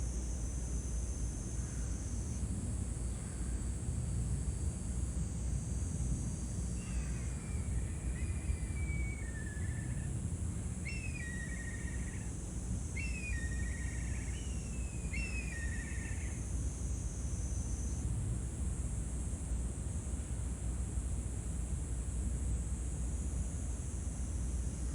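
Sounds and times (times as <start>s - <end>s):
bird calling with buzzy trill: 6.8s - 10.1s, 10.8s - 16.5s.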